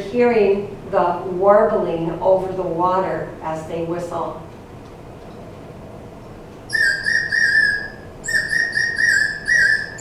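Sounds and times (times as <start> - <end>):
water bird whistle warbling: 6.7 - 10.0.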